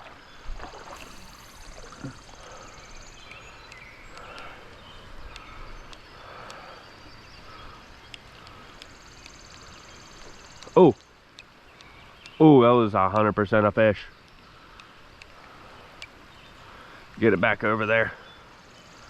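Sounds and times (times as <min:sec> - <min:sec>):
creek water flowing: 0:00.0 - 0:09.0
small clicks: 0:00.9 - 0:06.6.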